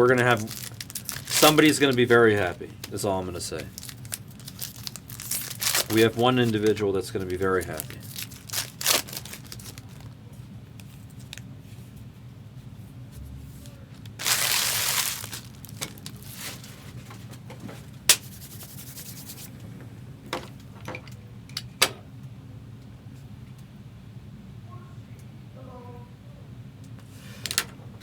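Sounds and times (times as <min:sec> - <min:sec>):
low steady hum: 0:00.0 - 0:28.0
card pack tearing: 0:00.2 - 0:02.0, 0:03.7 - 0:10.1, 0:14.1 - 0:16.7.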